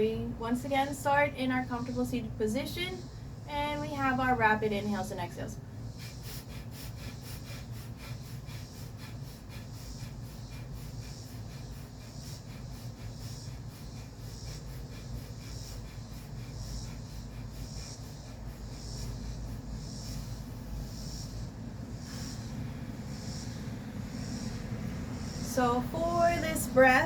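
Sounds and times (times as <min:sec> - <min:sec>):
forceful breathing through nose: 0:05.6 - 0:25.6.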